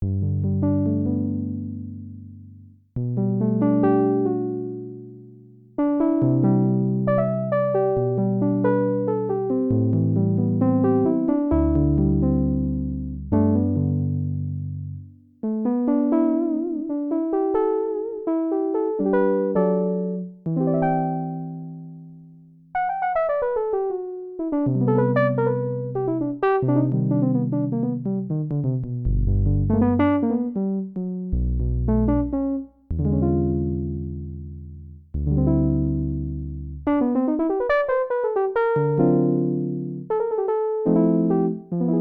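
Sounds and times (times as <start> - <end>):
synthesizer chords and melody: 22.9 - 42.0
synthesizer bass notes: 26.6 - 37.1.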